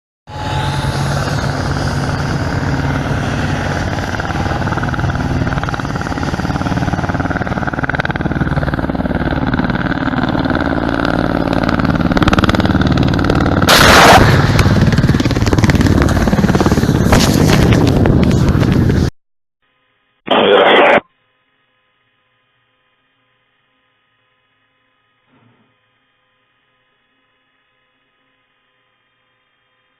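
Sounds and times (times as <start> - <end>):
helicopter rotors beating: 0.3 - 19.1
weapons fire burst: 13.6 - 17.7.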